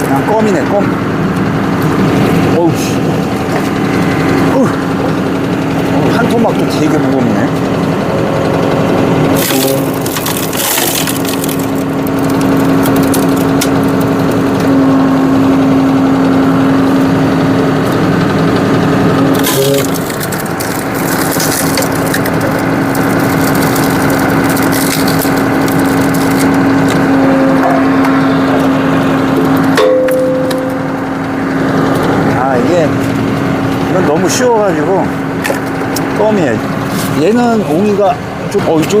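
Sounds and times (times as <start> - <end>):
tractor and hydraulic pump humming: 0.0 - 39.0
wood cracking and splintering: 9.2 - 14.7, 19.2 - 27.1.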